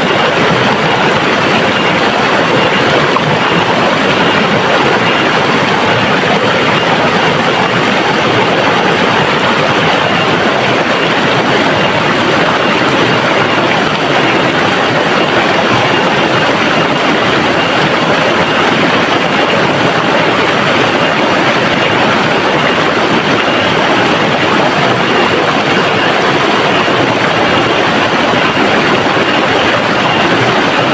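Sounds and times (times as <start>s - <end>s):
river water rushing and splashing: 0.0s - 30.9s.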